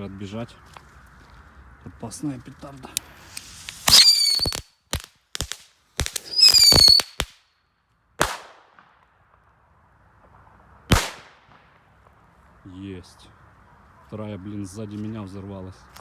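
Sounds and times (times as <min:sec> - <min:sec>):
firecracker crackling pops: 0:02.9 - 0:07.5, 0:08.2 - 0:09.6, 0:10.2 - 0:12.3
firecracker whistle: 0:03.3 - 0:04.7, 0:06.1 - 0:07.3
loud firecracker bang: 0:03.5 - 0:04.6, 0:06.0 - 0:07.3, 0:10.9 - 0:11.8.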